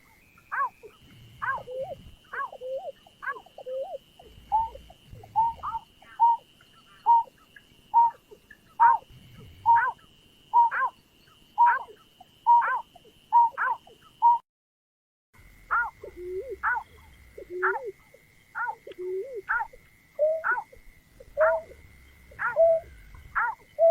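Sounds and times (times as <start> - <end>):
bird hooting calls: 0.0 - 14.4, 15.7 - 23.9
thin steady high tone: 0.0 - 14.4.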